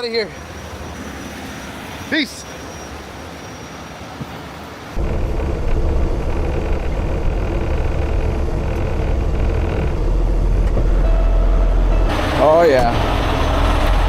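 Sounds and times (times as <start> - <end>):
diesel truck engine running: 5.0 - 14.0.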